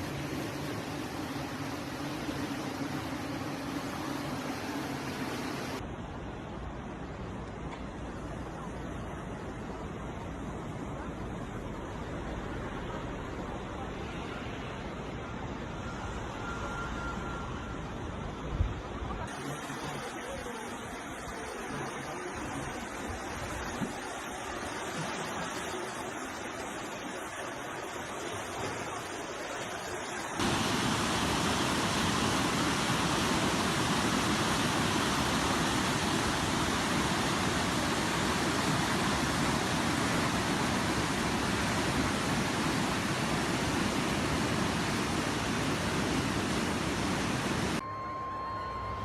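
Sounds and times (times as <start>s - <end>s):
floodwater rushing: 19.3s - 47.8s.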